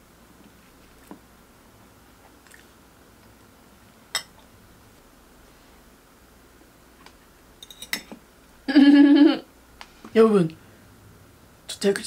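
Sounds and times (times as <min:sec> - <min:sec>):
soft chewing: 0:02.1 - 0:03.4.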